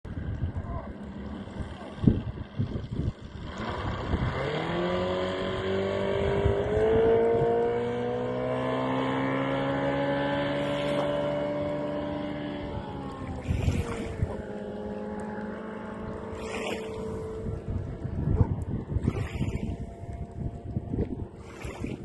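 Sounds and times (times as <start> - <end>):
motorboat engine speeding up: 0.1 - 22.0.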